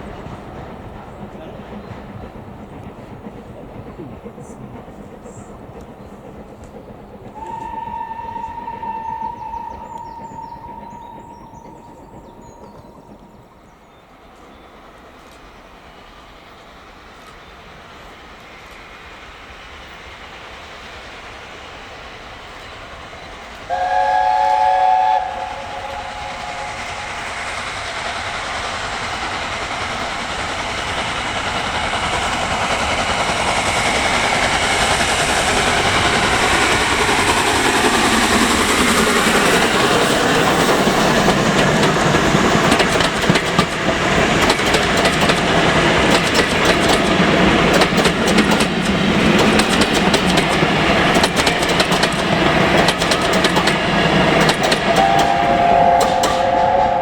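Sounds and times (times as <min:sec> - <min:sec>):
steam train running: 0:00.0 - 0:57.0
steam train whistle: 0:07.4 - 0:12.8, 0:23.7 - 0:27.6, 0:54.1 - 0:57.0
wheels clacking over rail joints: 0:22.9 - 0:56.8.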